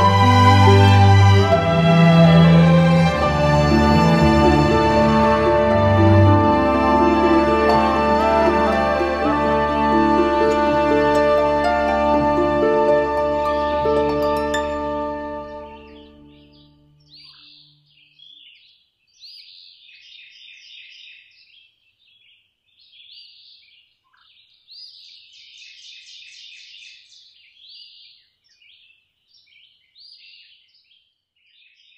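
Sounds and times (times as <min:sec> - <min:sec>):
background music: 0:00.0 - 0:17.2
songbirds singing: 0:15.4 - 0:31.9.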